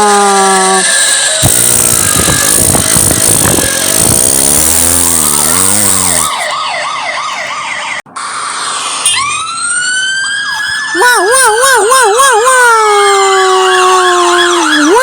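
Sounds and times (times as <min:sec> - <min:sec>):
cartoon warbling siren: 0:00.2 - 0:15.0
rising siren wail: 0:05.6 - 0:15.0.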